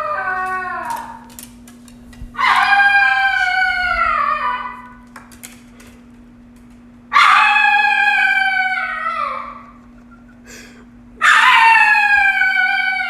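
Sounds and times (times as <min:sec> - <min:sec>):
dog howling: 0:00.0 - 0:01.4, 0:02.4 - 0:05.1, 0:07.1 - 0:09.8, 0:11.2 - 0:13.0.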